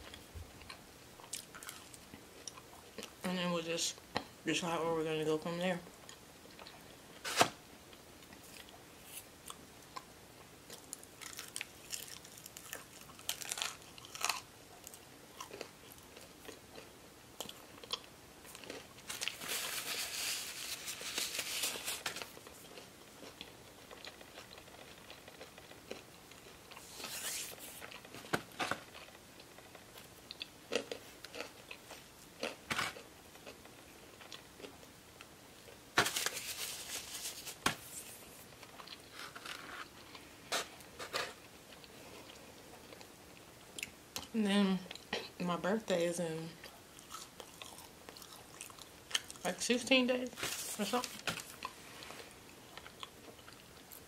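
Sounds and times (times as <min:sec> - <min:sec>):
chewing and biting crunchy food: 0:00.0 - 0:03.2, 0:08.2 - 0:34.9, 0:38.5 - 0:44.3, 0:46.6 - 0:49.5
paper napkin rustling: 0:19.1 - 0:22.3, 0:26.8 - 0:27.9, 0:36.0 - 0:38.5, 0:50.3 - 0:51.6.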